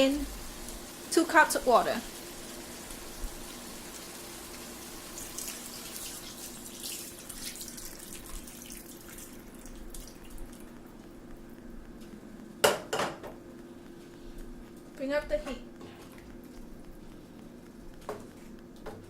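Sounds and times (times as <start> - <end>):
steady low hum: 6.6 - 19.0.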